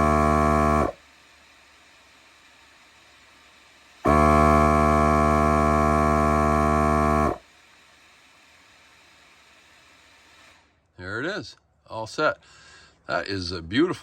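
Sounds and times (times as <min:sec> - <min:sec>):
tire inflator compressor humming: 0:00.0 - 0:10.9.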